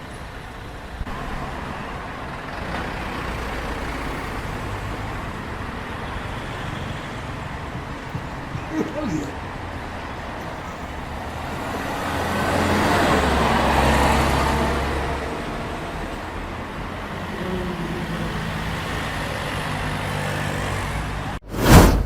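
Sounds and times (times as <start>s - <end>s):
loud whoosh: 21.4s - 22.0s.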